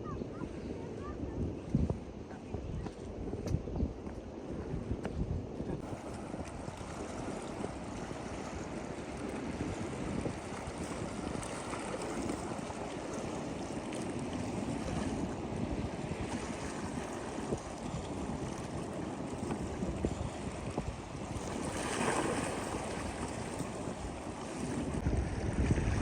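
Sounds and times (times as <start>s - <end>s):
wind on microphone: 0.0s - 26.0s
sea waves washing on beach: 5.8s - 26.0s.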